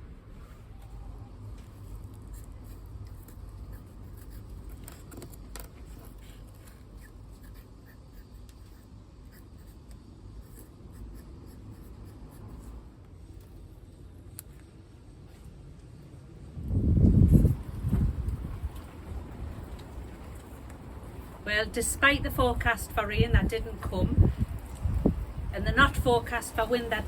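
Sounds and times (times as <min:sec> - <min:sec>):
low rumble of wind: 0:00.0 - 0:27.0.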